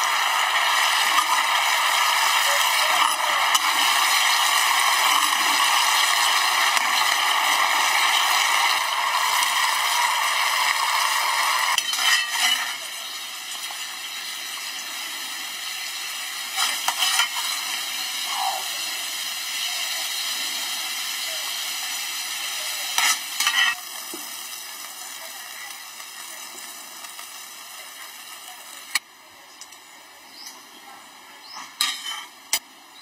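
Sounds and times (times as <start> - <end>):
fish sizzling in a wok: 0.0 - 33.0
ladle scraping a wok: 11.7 - 12.7.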